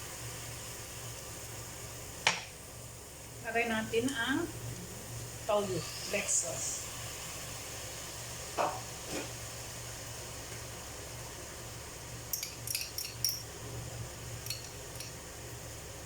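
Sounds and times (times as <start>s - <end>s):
metal utensil clinking on frying pan: 12.3s - 13.5s, 14.4s - 15.2s.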